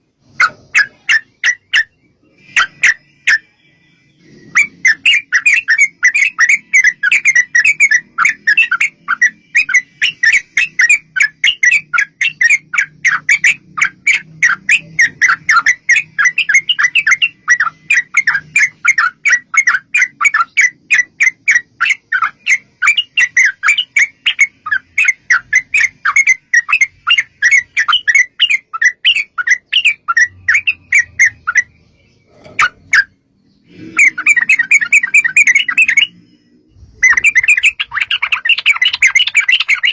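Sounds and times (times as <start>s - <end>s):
bird chattering call: 4.2s - 36.2s, 37.0s - 39.9s.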